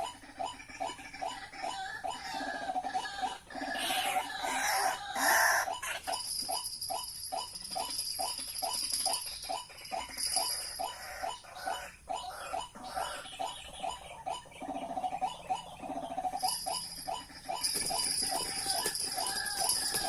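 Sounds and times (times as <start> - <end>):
waterhen calling: 9.6 - 20.0.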